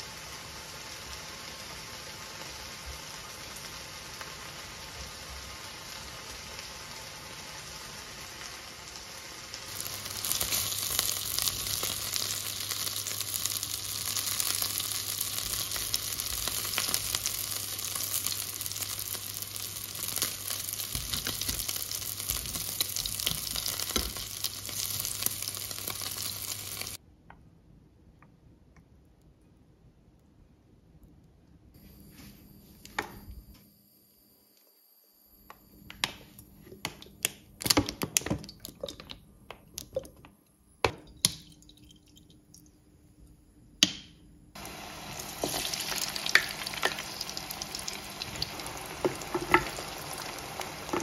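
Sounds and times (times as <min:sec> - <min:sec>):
food sizzling in a pan: 0:00.0 - 0:27.0, 0:44.6 - 0:51.0.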